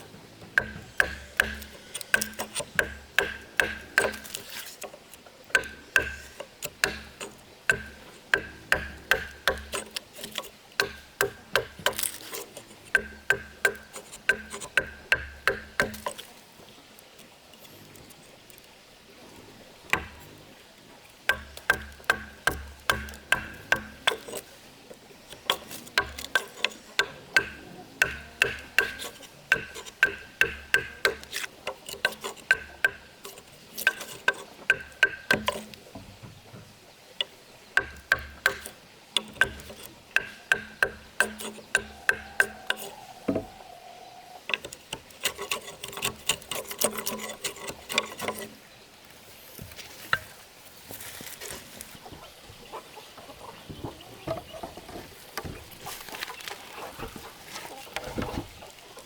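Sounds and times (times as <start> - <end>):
hand tool knocking on wood: 0.4 - 4.4, 5.5 - 12.1, 12.9 - 16.2, 19.9 - 20.2, 21.3 - 24.4, 25.5 - 33.1, 33.8 - 43.5.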